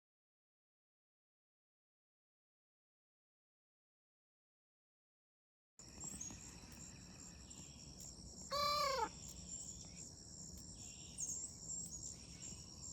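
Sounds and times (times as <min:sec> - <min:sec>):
crickets chirping: 0:05.8 - 0:12.9
chicken call: 0:08.5 - 0:09.1.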